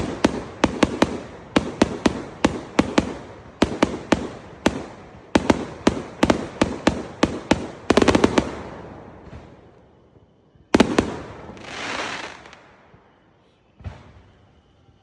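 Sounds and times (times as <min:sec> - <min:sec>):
fireworks cracking: 0:00.0 - 0:08.7, 0:10.8 - 0:12.6
fireworks bangs: 0:00.0 - 0:09.6, 0:10.7 - 0:12.7.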